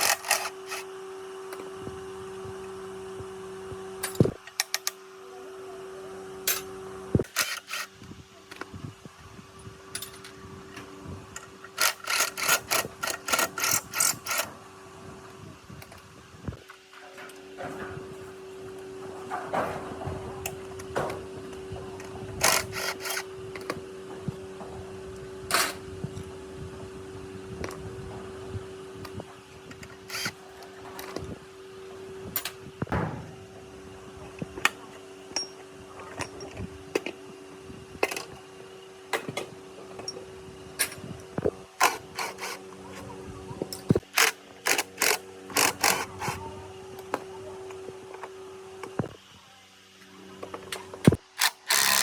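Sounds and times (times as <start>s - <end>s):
steady low hum: 0.0s - 52.0s
hand tools clinking on metal parts: 51.4s - 52.0s.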